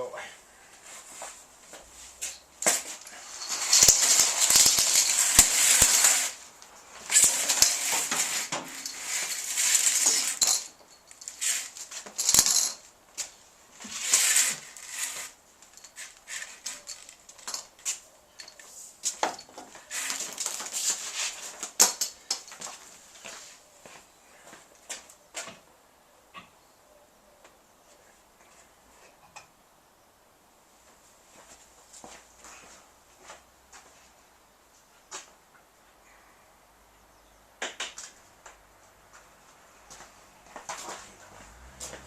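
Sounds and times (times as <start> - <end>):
clinks and knocks: 2.2 - 6.2, 7.1 - 12.9, 15.6 - 20.8, 21.7 - 22.7.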